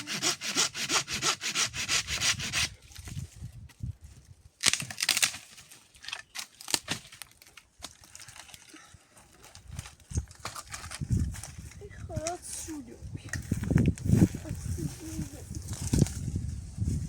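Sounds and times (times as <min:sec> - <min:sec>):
saw cutting wood: 0:00.0 - 0:02.8.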